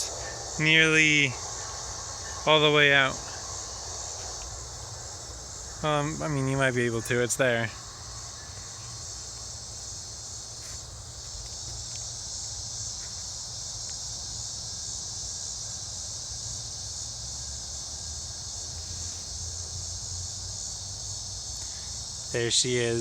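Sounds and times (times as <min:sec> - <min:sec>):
insect chorus trilling: 0:00.0 - 0:23.0.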